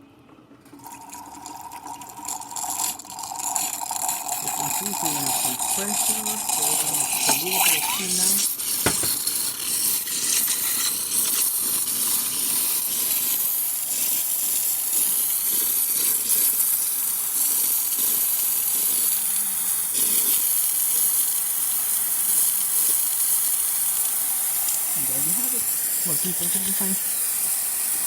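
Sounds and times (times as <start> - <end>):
espresso machine steam wand hissing: 0.8 - 28.0.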